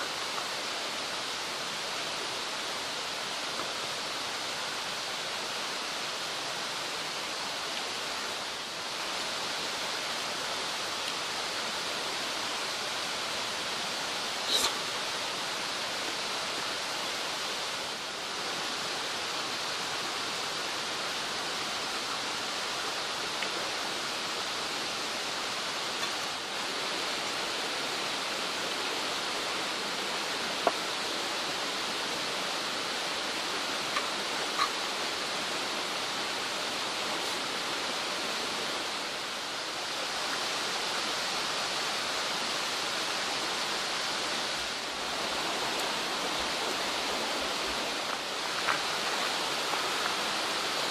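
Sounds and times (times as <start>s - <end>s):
mountain stream rushing: 0.0s - 50.9s.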